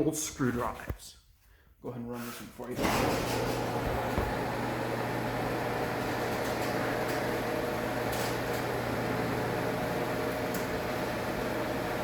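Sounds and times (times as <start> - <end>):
garage door opener motor hum: 2.8 - 12.0.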